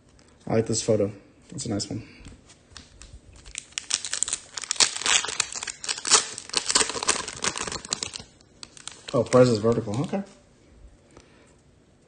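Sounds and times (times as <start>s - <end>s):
wrapper crinkling: 2.6s - 10.3s.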